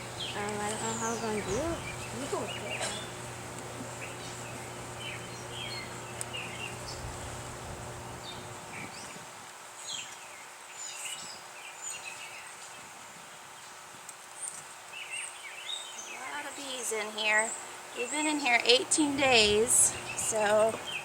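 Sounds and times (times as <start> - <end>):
bees buzzing: 0.0 - 9.2, 16.3 - 21.0
low hum: 0.0 - 9.2, 17.6 - 21.0.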